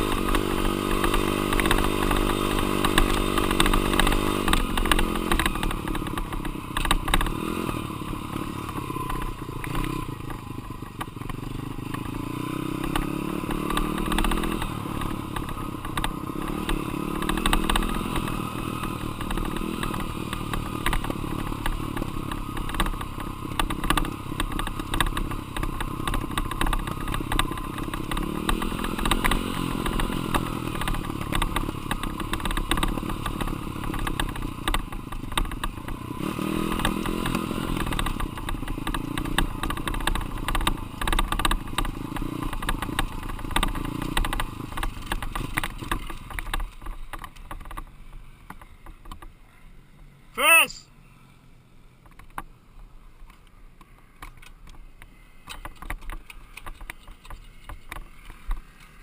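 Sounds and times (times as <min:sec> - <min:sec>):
dirt bike engine revving: 0:00.0 - 0:10.2, 0:11.5 - 0:34.0, 0:36.1 - 0:41.0.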